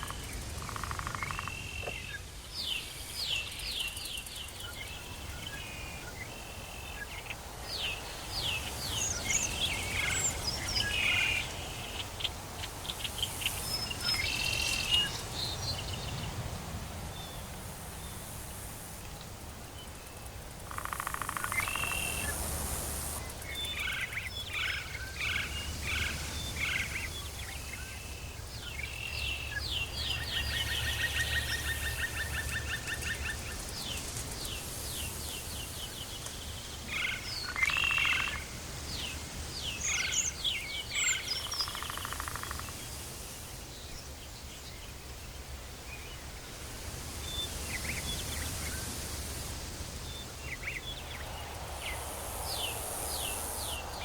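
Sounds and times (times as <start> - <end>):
faint high hiss: 0.0 - 54.0.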